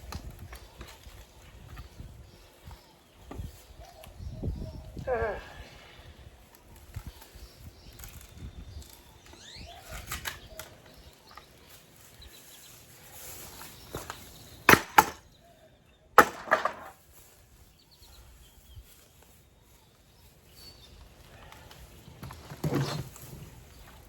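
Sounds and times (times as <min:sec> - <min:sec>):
wood splintering strikes: 0:14.7 - 0:15.2, 0:16.2 - 0:17.0.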